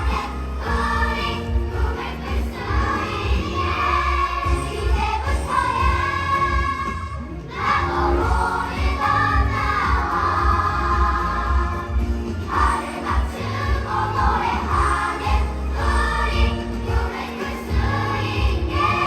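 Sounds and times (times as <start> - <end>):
backing track with heavy bass: 0.0 - 19.0
group of voices singing: 0.0 - 19.0.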